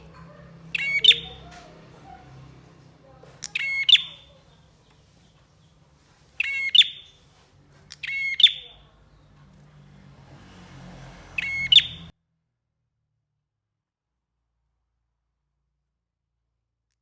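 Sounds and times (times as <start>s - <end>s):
bird chattering song: 0.0s - 2.3s, 3.2s - 5.8s, 6.4s - 7.2s, 7.8s - 9.4s, 11.4s - 12.1s.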